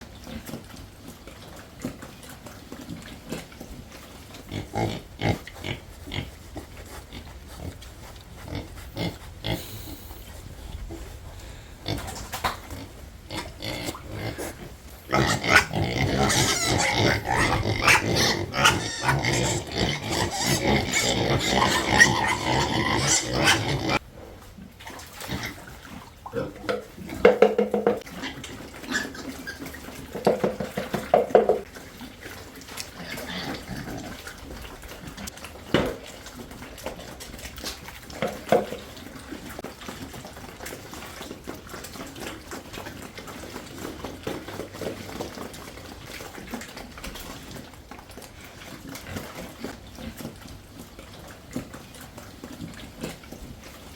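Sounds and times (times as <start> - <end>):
pigs vocalizing loudly: 0.1 - 24.2, 24.8 - 53.9
pig grunts: 0.2 - 24.4, 25.2 - 39.6.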